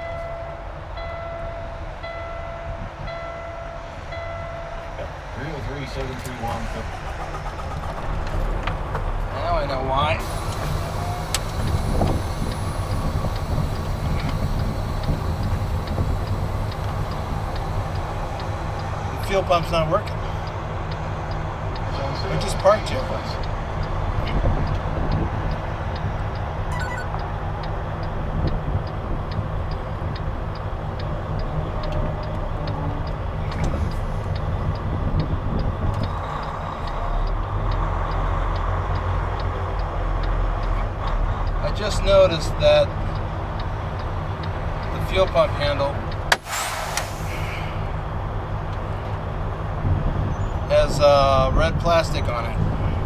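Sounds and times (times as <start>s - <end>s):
diesel engine idling: 5.1s - 49.8s
faint regular ticking: 8.2s - 46.3s.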